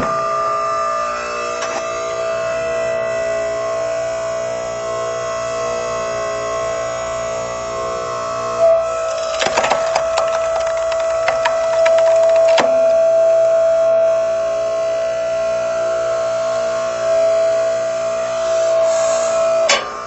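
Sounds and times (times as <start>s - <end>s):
log splitter humming: 8.6s - 13.8s
log cracking and splintering: 8.9s - 13.0s.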